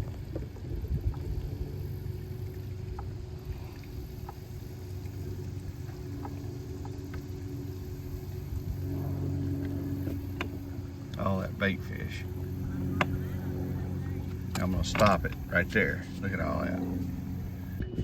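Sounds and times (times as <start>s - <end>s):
boat motor running: 0.0s - 18.0s.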